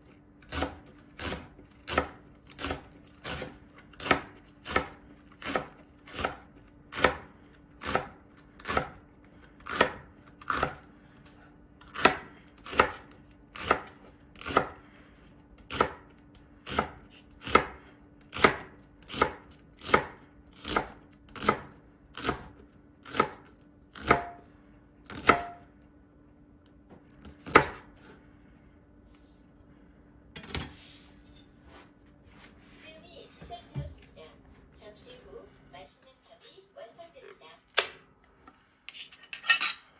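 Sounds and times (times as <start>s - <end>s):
knife chopping on cutting board: 0.5s - 9.0s, 9.6s - 10.8s, 11.9s - 14.8s, 15.7s - 16.1s, 16.7s - 24.4s, 25.1s - 25.6s, 27.0s - 28.2s.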